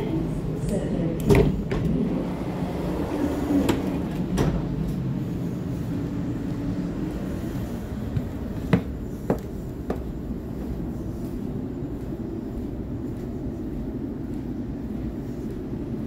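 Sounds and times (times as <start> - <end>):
train carriage rumble: 0.0 - 16.0.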